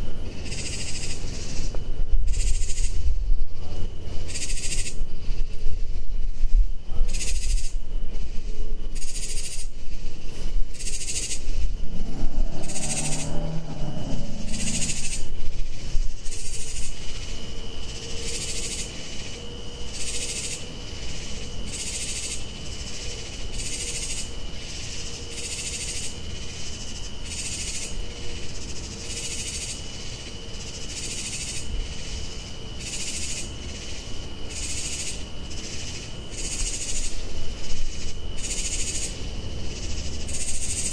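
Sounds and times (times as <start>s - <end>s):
harsh rasping calls: 10.8s - 15.4s
low cooing call: 11.8s - 15.5s.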